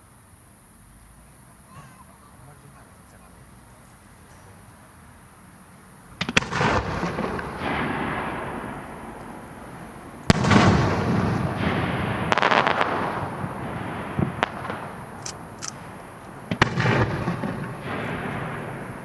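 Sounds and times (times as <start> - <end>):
firework crackles: 6.0 - 19.0
firework shells bursting: 6.2 - 19.0.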